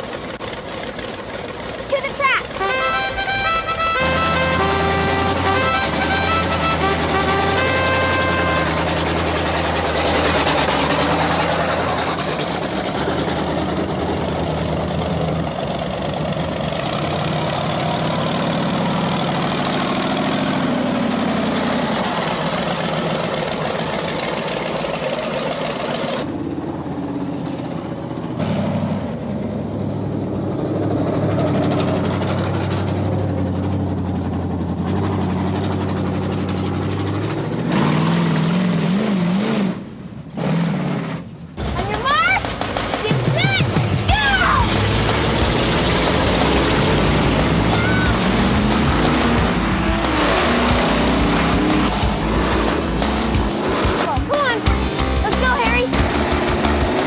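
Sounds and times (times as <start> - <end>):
monster truck engines running: 0.0 - 57.0.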